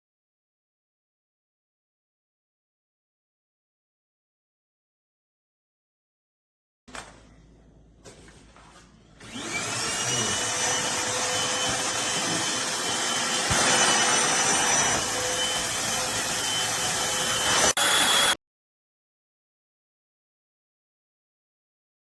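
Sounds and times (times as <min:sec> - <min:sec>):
stick vacuum motor whine: 0:09.2 - 0:18.4.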